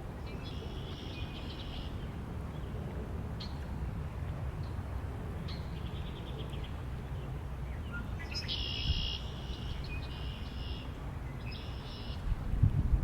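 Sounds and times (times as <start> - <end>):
wind rumble: 12.2 - 13.0.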